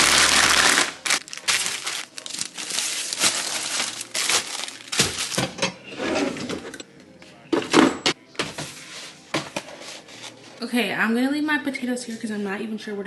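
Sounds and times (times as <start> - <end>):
packaging rustling and crinkling: 0.0 - 5.6
food items knocking and clattering: 0.0 - 5.8.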